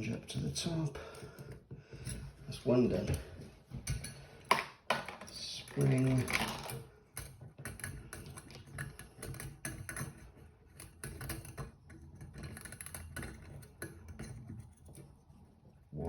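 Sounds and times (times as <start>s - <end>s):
small parts clicking and tapping: 2.9s - 15.4s.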